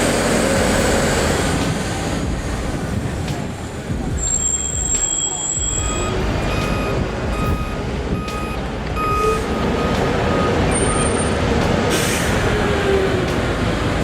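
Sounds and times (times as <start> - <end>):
diesel engine rumbling: 0.0 - 14.0
reversing alarm beeping: 4.1 - 11.7.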